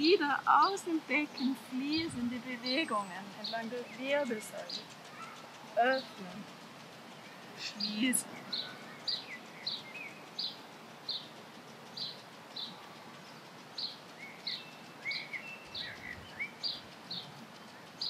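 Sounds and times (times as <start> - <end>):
lower bird chirps: 0.0 - 18.0
bird repeating high call: 2.8 - 6.2.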